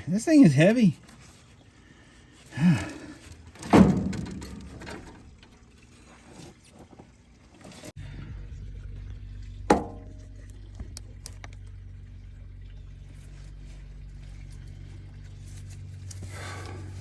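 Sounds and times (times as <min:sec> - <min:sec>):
heavy metal clunks and knocks: 0:03.6 - 0:05.5, 0:09.7 - 0:10.2
steady low hum: 0:07.3 - 0:17.0.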